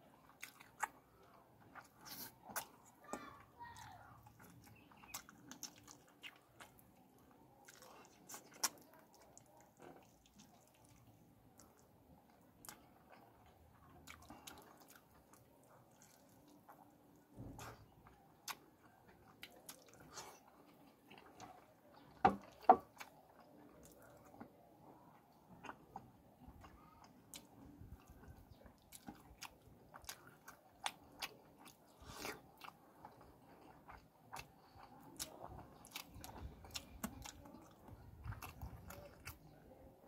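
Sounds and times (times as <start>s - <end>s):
man chewing with wet mouth sounds: 0.0s - 40.0s.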